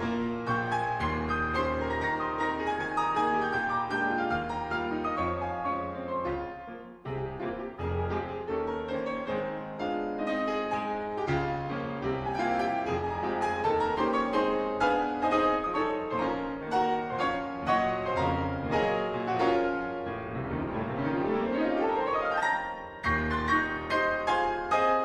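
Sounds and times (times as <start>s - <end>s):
fast piano music: 0.0s - 25.0s.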